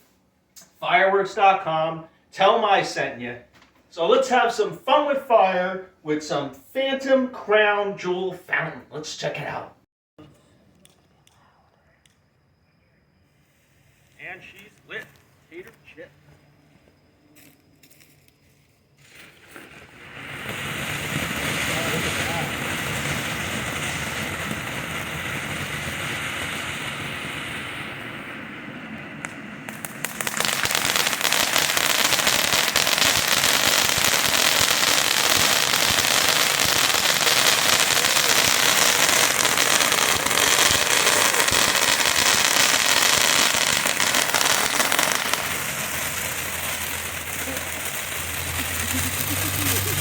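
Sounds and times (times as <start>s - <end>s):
firework fountain hissing: 13.2s - 16.0s, 17.4s - 50.0s
dense firework crackle: 17.3s - 50.0s
firework pops: 19.0s - 50.0s.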